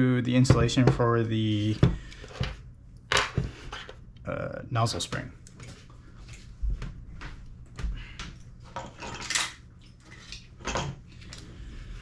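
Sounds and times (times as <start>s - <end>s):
small metal parts clinking: 8.8s - 9.6s.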